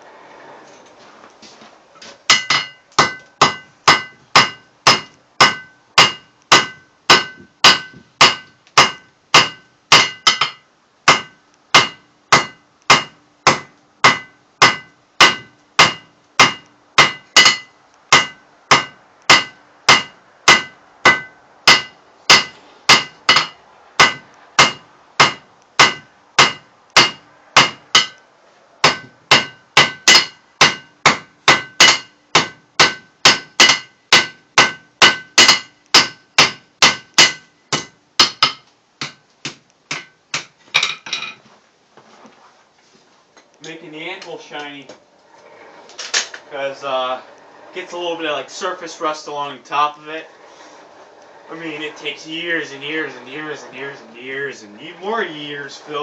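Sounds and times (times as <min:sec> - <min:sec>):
hammer striking steel on anvil: 0:02.3 - 0:28.2, 0:28.8 - 0:41.4.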